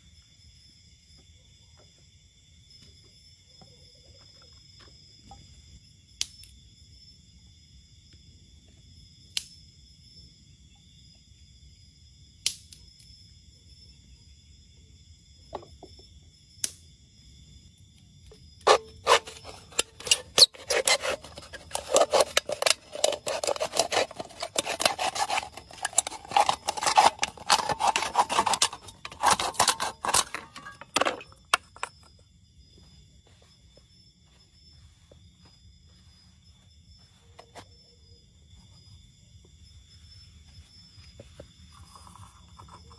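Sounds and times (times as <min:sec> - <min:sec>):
scraping and rasping with clicks: 0:18.6 - 0:32.2.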